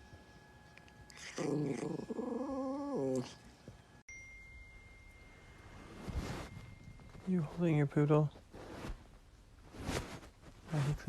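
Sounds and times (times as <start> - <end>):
dog whining: 1.1 - 3.5.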